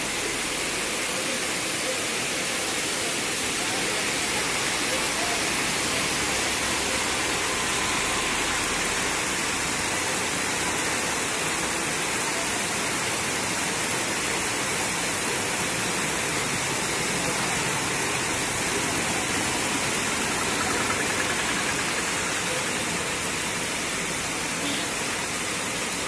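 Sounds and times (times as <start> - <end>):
heavy rain on pavement: 0.0 - 26.0.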